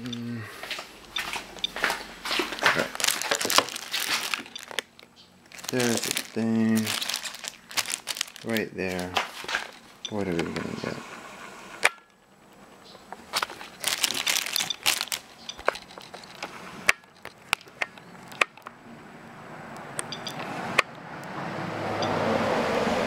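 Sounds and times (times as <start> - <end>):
radiation dosimeter clicking: 1.0 - 2.8, 14.6 - 18.8, 19.8 - 21.0
passing car road noise: 16.4 - 23.0.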